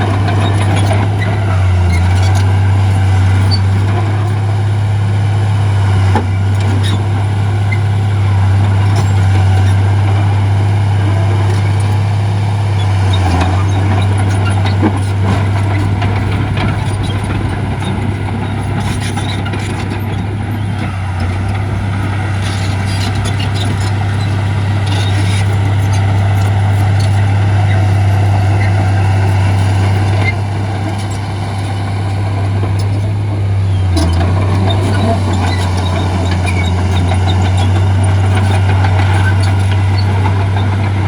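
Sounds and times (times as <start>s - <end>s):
heavy diesel machinery engine drone: 0.0s - 41.0s
metal clanks and rattles: 13.5s - 24.4s.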